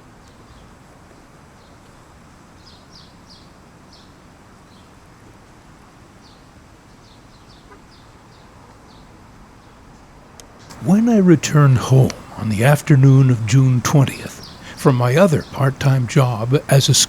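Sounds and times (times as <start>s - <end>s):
small birds chirping: 10.7s - 17.0s.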